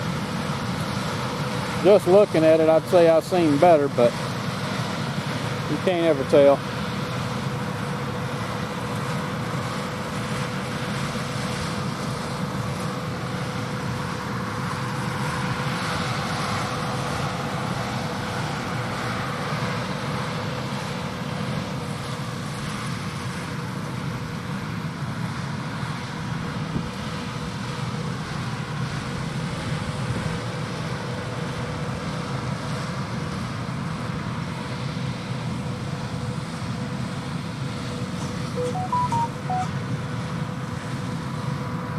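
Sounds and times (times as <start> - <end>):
tractors and harvesting machines: 0.0 - 41.9
steady machine tone: 38.2 - 39.8.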